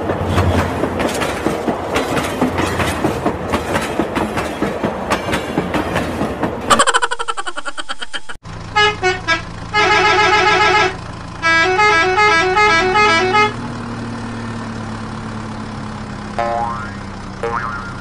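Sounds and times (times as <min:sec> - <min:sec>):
electronic horn-like beeps: 0:08.8 - 0:13.6
fast warbling tone: 0:16.4 - 0:18.0.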